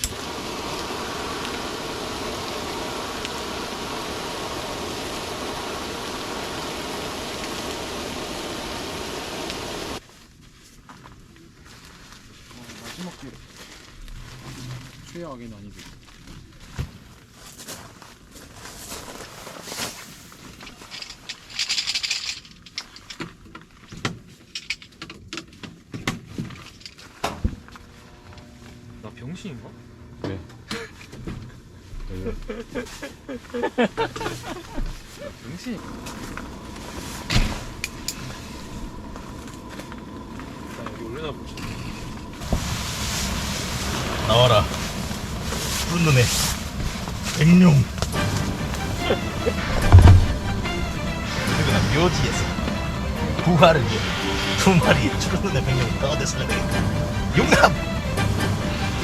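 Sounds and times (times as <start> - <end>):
food sizzling in a pan: 0.0 - 10.0
rustle: 0.0 - 25.0, 31.8 - 49.2.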